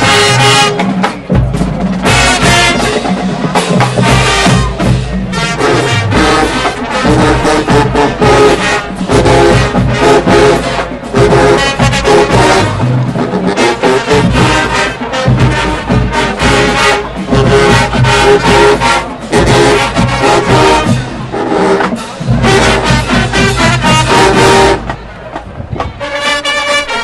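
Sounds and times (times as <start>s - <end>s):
driving drums: 0.0s - 27.0s
marching band brass: 0.0s - 27.0s.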